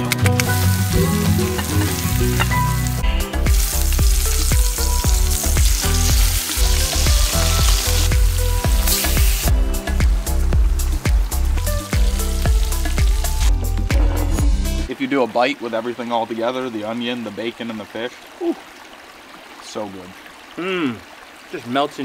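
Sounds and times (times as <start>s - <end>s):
background music with low beat: 0.0s - 14.9s
fish sizzling in hot oil: 0.4s - 9.6s, 11.6s - 13.5s.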